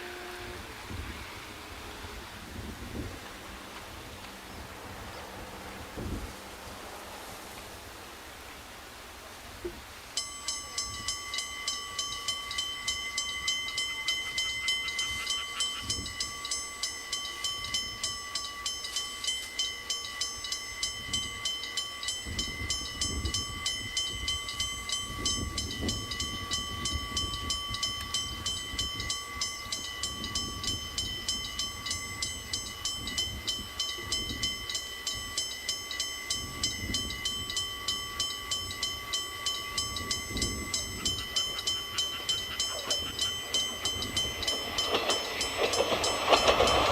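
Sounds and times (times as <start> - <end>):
train rumbling past: 0.0 - 46.9
level crossing bell ringing: 10.2 - 46.9.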